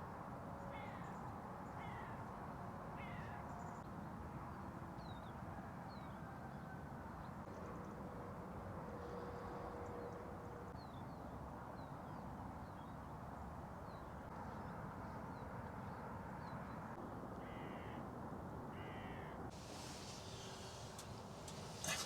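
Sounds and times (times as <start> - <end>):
background hiss: 19.5 - 22.0.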